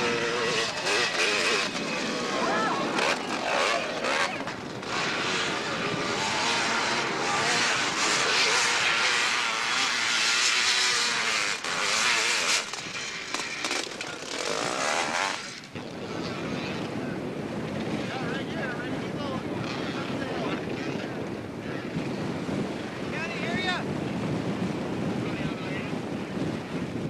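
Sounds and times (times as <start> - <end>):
dirt bike engine revving: 0.0 - 16.8.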